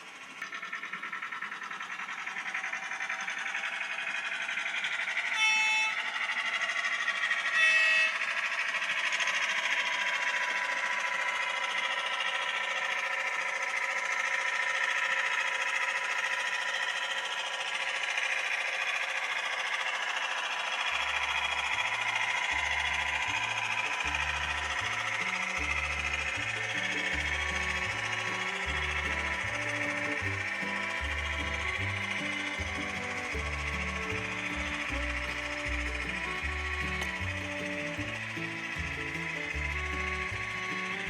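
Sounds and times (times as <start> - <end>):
model locomotive motor and wheel hum: 0.0 - 41.0
short horn blasts: 5.4 - 6.2, 7.5 - 8.5, 27.9 - 38.7
music with pulsing bass: 21.3 - 41.0.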